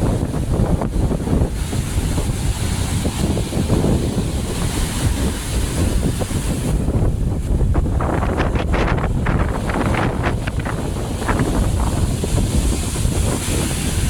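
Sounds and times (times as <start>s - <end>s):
surf washing in: 0.0s - 14.0s
waves splashing: 0.0s - 14.0s
wind buffeting microphone: 0.0s - 14.0s.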